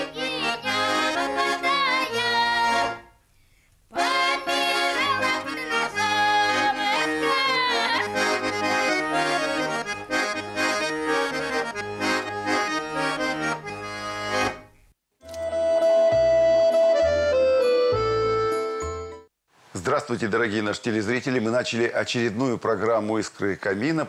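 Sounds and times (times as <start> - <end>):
button accordion music: 0.0 - 3.1, 4.0 - 19.3.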